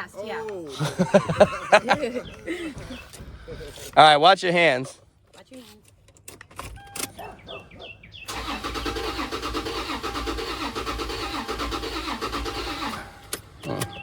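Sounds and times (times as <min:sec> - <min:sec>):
engine cranking without starting: 0:08.3 - 0:14.0.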